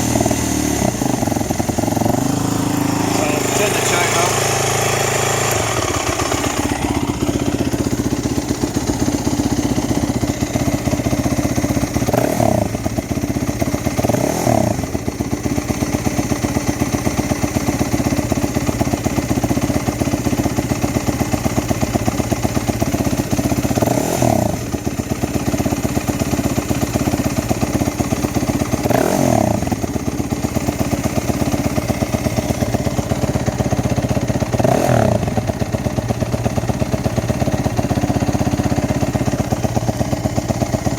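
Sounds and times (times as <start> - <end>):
motorcycle engine idling: 0.0 - 40.9
engine throttle blips: 0.8 - 6.5.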